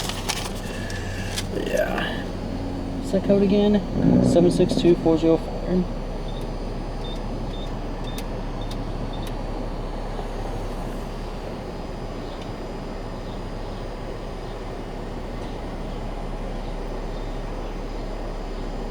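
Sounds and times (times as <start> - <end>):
idling vehicle hum: 0.0 - 18.9
keypad beeps: 6.3 - 9.4.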